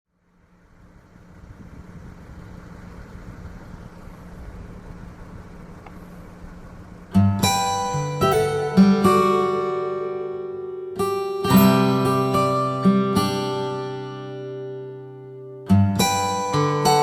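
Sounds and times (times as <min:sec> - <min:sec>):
faint hum: 0:00.1 - 0:11.0
strummed acoustic guitar music: 0:06.9 - 0:17.0.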